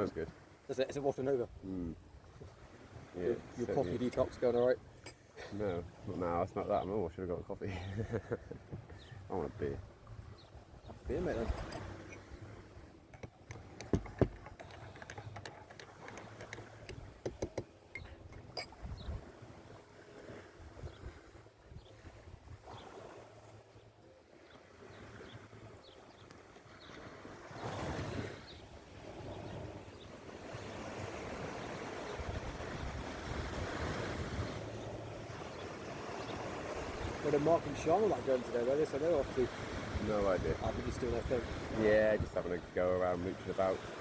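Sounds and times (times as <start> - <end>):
sea waves washing ashore: 0.0 - 44.0
wind buffeting microphone: 7.9 - 19.5, 20.2 - 23.1, 27.0 - 38.4, 39.0 - 42.8.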